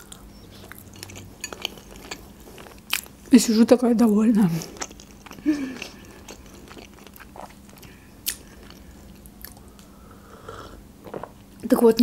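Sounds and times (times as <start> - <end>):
person chewing and swallowing: 0.0 - 3.3, 4.5 - 9.9, 11.0 - 11.5.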